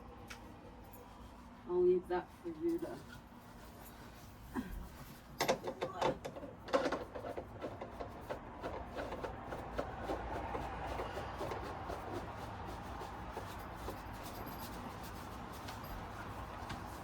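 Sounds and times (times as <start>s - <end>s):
furniture parts knocking and clicking: 5.4s - 12.2s.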